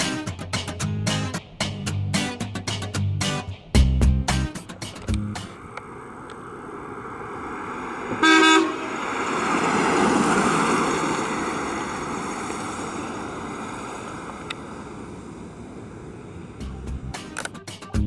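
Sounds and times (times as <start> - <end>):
vehicle passing road noise: 5.0 - 17.5
car horn honk: 8.2 - 8.9.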